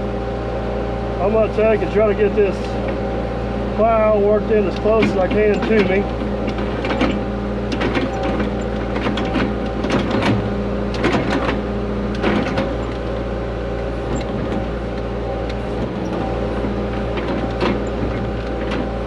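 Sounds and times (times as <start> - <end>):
excavator engine running: 0.0 - 19.0
knocks and clicks from plow: 3.8 - 19.0.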